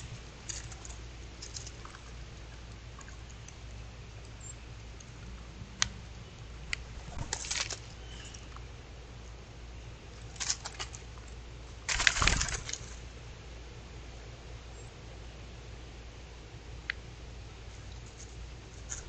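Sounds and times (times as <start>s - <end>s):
low hum and hiss: 0.0s - 19.0s.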